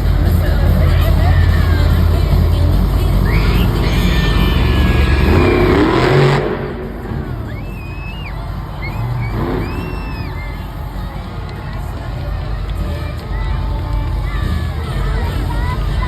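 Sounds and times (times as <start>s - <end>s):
monster truck engine revving: 0.0s - 16.0s
high squeals: 0.8s - 12.0s.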